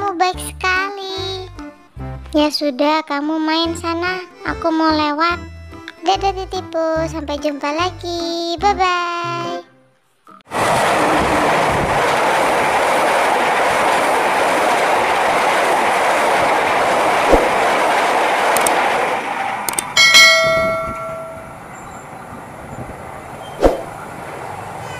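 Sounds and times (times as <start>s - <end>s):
train carriages clattering past: 10.5s - 24.9s
clicks: 18.6s - 18.8s, 19.7s - 20.0s
short bright chime: 20.0s - 21.6s.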